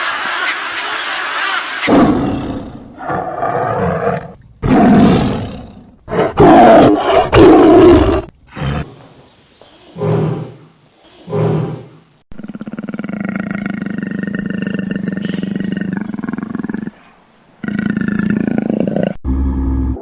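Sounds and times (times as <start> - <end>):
big cat roaring and growling: 1.9 - 9.0.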